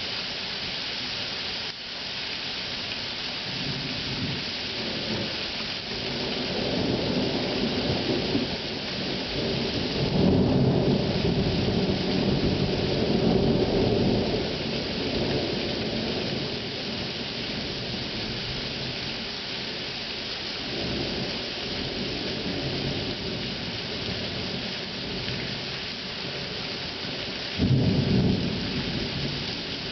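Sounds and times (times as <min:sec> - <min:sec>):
steady rain hiss: 0:00.0 - 0:29.9
rolling thunder: 0:06.0 - 0:14.5, 0:27.6 - 0:29.9.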